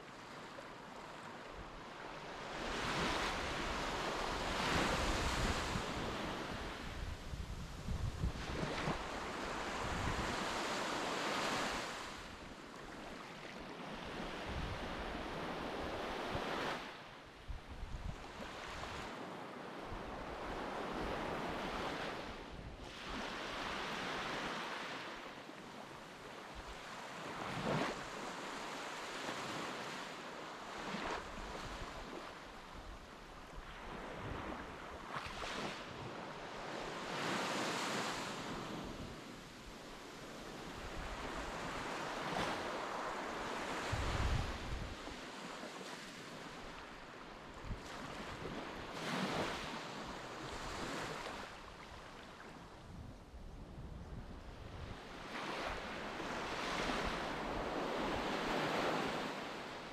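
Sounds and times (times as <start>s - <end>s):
wind buffeting microphone: 4.5s - 10.4s, 43.8s - 45.0s.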